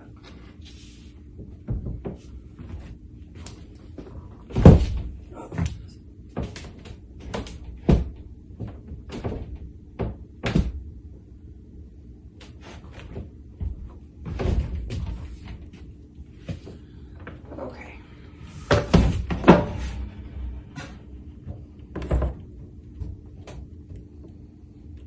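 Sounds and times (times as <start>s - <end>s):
wooden cabinet knocks and thuds: 1.4s - 2.8s, 4.4s - 5.8s, 6.4s - 10.9s, 13.0s - 15.7s, 18.6s - 23.7s.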